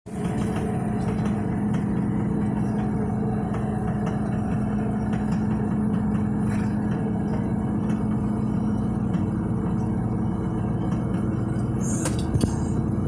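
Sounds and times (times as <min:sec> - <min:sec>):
truck engine humming: 0:00.1 - 0:13.0.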